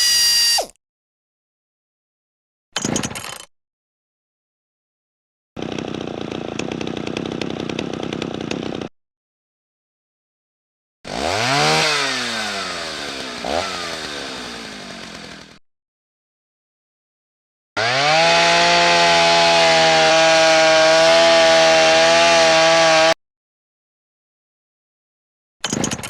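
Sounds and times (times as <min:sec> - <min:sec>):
chainsaw engine revving: 0:05.6 - 0:08.9, 0:11.1 - 0:15.6, 0:17.8 - 0:23.2
power tool rasping: 0:11.1 - 0:15.6.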